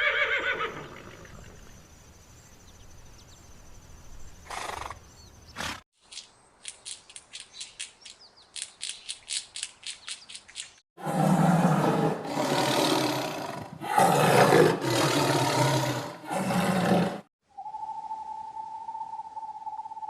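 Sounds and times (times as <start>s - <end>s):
sharp clicks: 6.1s - 10.8s
horse snorting: 11.0s - 17.3s
faint bird chirps: 17.4s - 20.0s.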